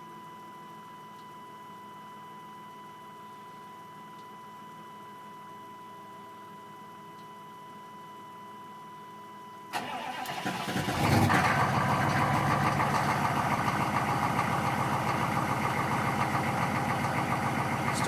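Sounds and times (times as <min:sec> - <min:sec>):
diesel engine cranking: 0:09.8 - 0:18.0
diesel engine idling: 0:09.8 - 0:18.0.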